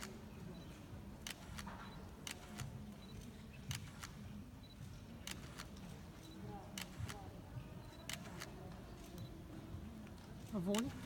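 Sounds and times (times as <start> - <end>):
camera shutter clicking: 8.0 - 8.5.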